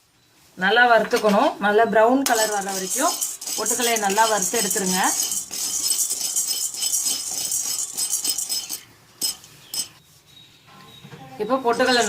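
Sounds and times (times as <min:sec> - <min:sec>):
roasted gram rattling in a pan: 0:02.3 - 0:10.0, 0:11.8 - 0:12.0.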